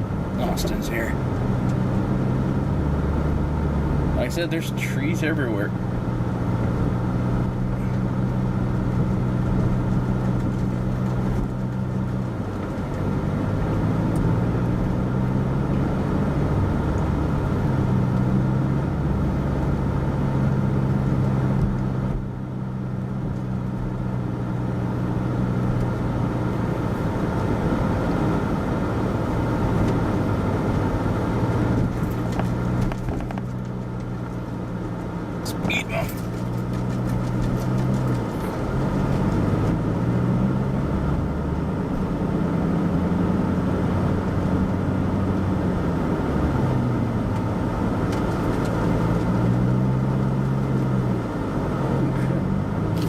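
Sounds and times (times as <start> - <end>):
car engine running: 0.0 - 53.0
road noise: 0.0 - 53.0.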